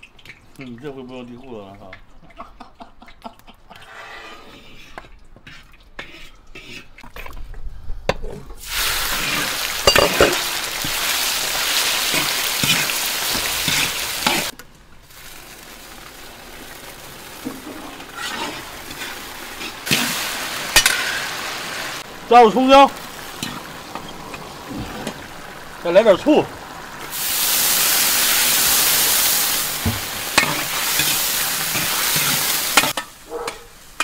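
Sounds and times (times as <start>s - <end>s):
metal ladle scraping a wok: 3.8s - 7.0s, 17.5s - 20.0s, 30.3s - 33.2s
meat sizzling in hot oil: 8.6s - 34.0s.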